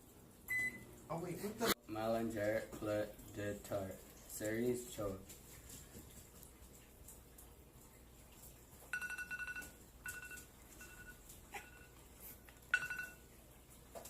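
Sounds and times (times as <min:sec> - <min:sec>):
microwave oven beeping: 0:00.5 - 0:00.9, 0:08.9 - 0:12.0, 0:12.7 - 0:13.3.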